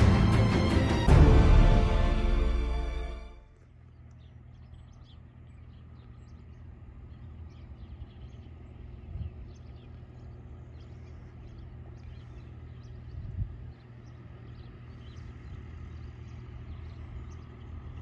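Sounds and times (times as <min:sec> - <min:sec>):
small birds chirping: 0:03.8 - 0:18.0.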